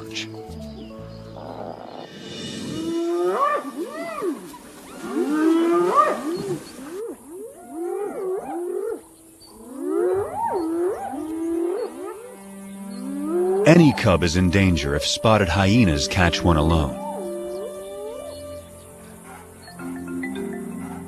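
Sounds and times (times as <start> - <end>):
hyenas whooping and giggling: 19.2 - 21.0.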